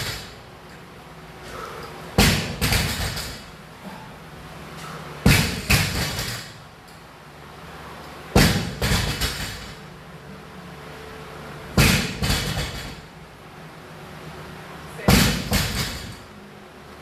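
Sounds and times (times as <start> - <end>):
barbell slamming on floor: 2.2 - 3.5, 5.2 - 6.6, 8.4 - 9.8, 11.8 - 13.0, 15.1 - 16.2.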